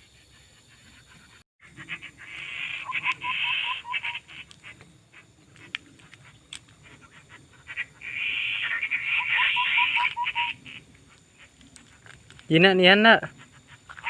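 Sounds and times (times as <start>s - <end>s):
bird harsh rasping call: 0.0s - 5.3s, 6.1s - 11.6s.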